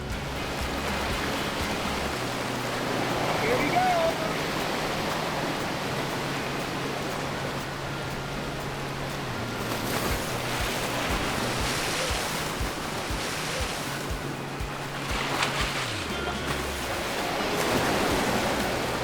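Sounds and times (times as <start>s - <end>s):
soft low thumps: 0.0s - 2.4s
low sustained tones: 0.0s - 19.0s
ocean surf washing: 0.0s - 19.0s
wind: 0.0s - 19.0s.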